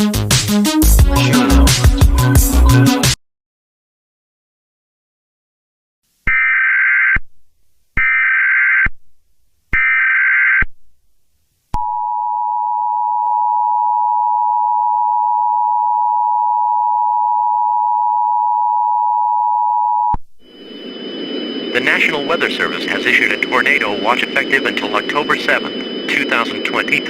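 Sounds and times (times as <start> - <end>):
buzzing data header tones: 20.5 - 27.0.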